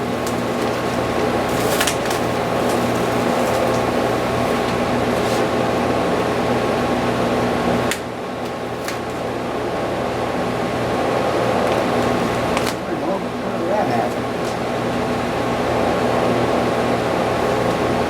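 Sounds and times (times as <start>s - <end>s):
film ticks and crackles: 0.0s - 4.8s
machine fan hum: 0.0s - 18.0s.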